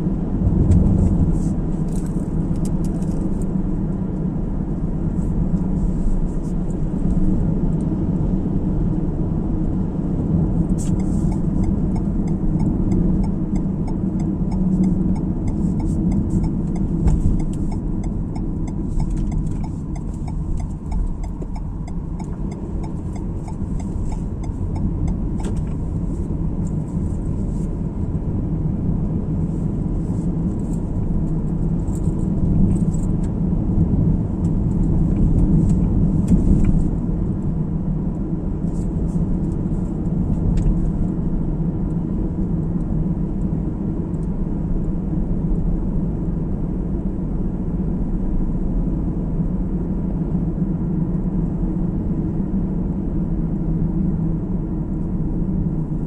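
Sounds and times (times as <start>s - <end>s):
road and engine rumble in car: 0.0s - 56.0s.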